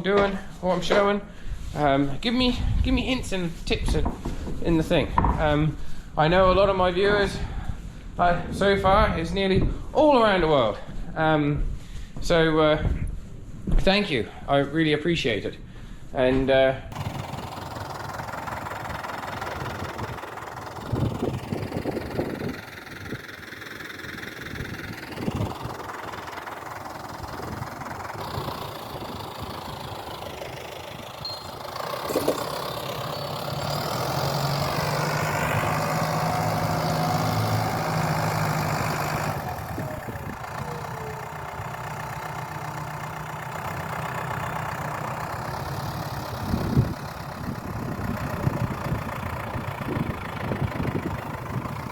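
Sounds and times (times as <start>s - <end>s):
clunks: 3.8s - 5.6s, 31.2s - 34.6s
engine running and revving: 16.9s - 51.9s.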